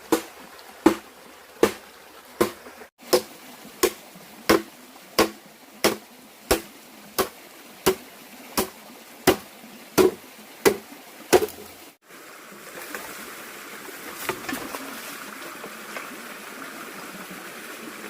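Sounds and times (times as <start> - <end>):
flowing water: 0.0 - 18.0
blade chopping wood: 0.1 - 1.0, 2.4 - 8.0, 9.3 - 11.7.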